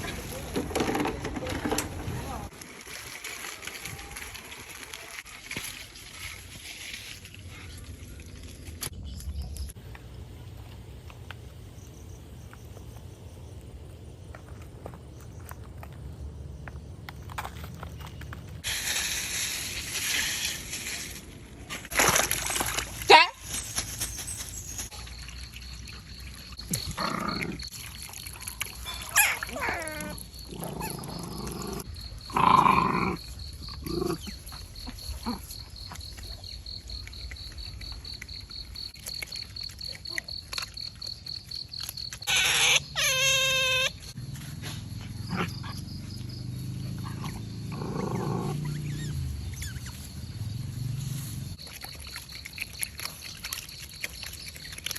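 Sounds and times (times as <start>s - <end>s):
otters growling and squeaking: 28.8s - 35.6s, 42.2s - 44.2s, 46.9s - 50.1s.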